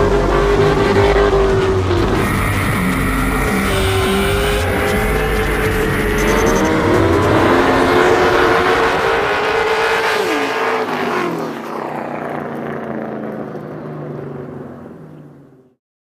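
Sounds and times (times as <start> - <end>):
car engine at high revs: 0.0 - 15.8.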